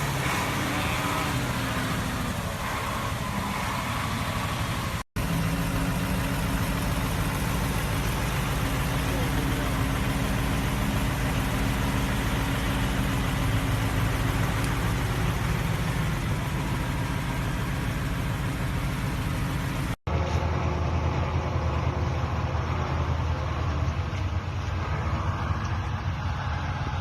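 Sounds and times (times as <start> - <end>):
deep engine drone: 0.0 - 27.0
truck engine running: 0.0 - 27.0.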